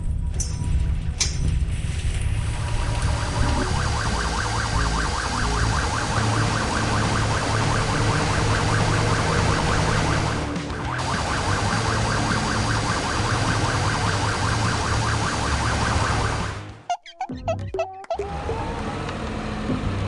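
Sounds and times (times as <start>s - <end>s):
motor vehicle running: 0.0s - 20.0s
warbling alarm tone: 3.1s - 10.4s.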